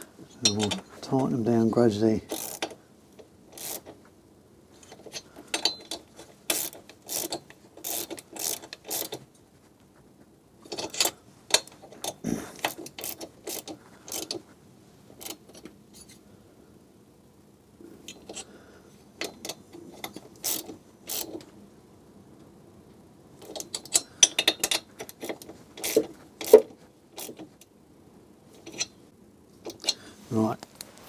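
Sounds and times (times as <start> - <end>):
hand ratchet clicking: 2.3 - 2.8, 3.5 - 3.9, 4.9 - 9.2, 10.7 - 14.4, 15.2 - 15.7, 19.2 - 21.4, 23.4 - 27.5.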